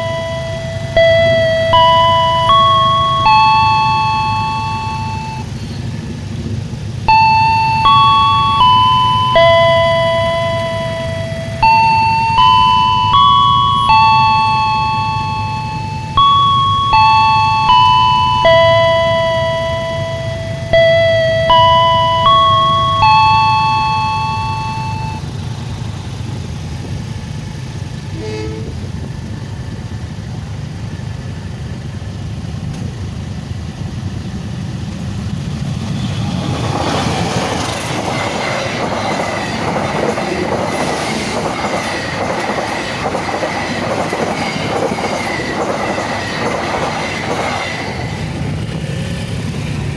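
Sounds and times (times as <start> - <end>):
ringing chime notes: 0.0 - 5.6, 7.1 - 25.4
train wheels clattering over rails: 34.4 - 49.9.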